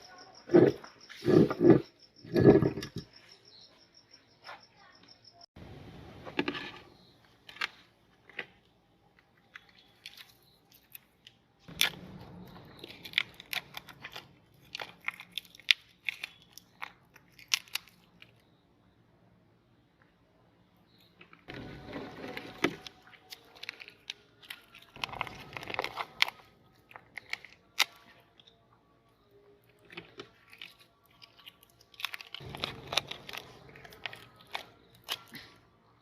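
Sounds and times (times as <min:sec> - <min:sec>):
meat grinder crunching: 0:21.9 - 0:28.1, 0:29.9 - 0:35.5.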